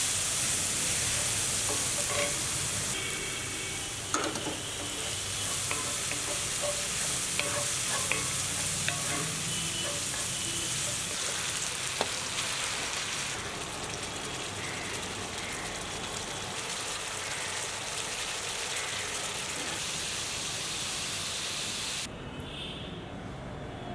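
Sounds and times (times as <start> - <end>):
curry sizzling in hot oil: 0.0 - 22.1
utensil clicking against pan: 4.1 - 11.0.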